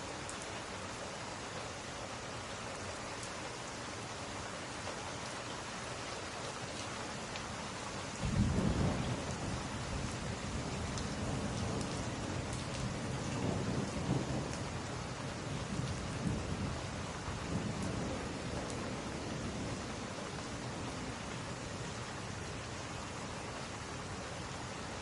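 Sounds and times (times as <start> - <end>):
steady rain: 0.0 - 25.0
thunder rumbling: 8.2 - 19.9.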